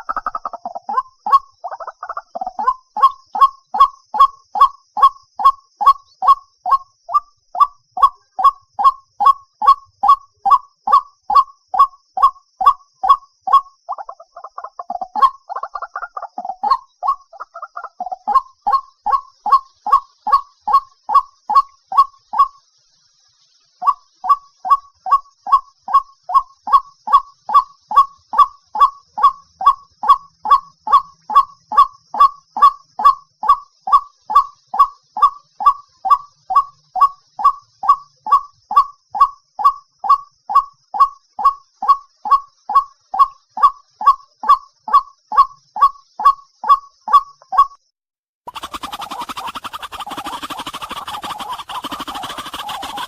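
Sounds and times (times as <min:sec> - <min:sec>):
harsh bird call: 0:48.5 - 0:53.0.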